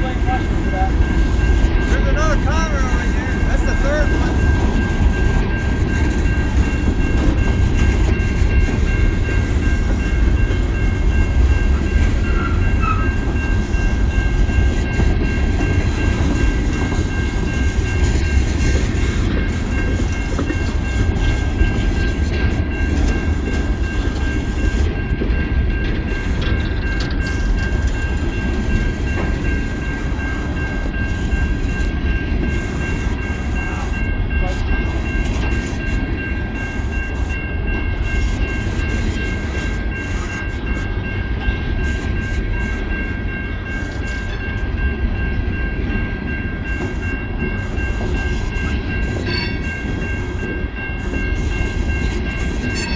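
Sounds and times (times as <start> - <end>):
train cars rumbling on rails: 0.0 - 52.9.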